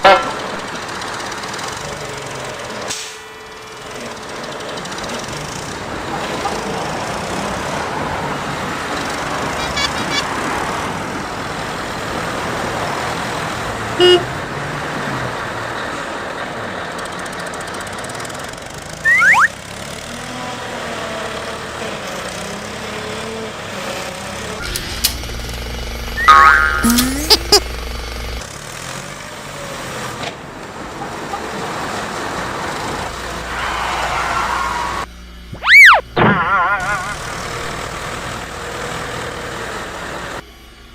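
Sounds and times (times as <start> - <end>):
cartoon horn toot: 0.0 - 0.6, 14.0 - 14.3, 19.1 - 19.5, 26.2 - 27.6, 35.6 - 37.3
rumble of vehicles: 0.0 - 40.9
falling squeal: 19.1 - 19.5, 33.3 - 37.0.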